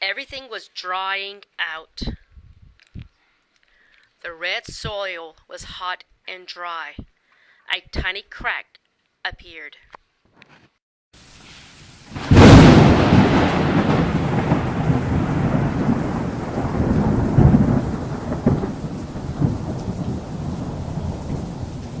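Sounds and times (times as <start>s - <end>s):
rain hissing: 11.2s - 22.0s
thunder rumbling: 12.1s - 22.0s.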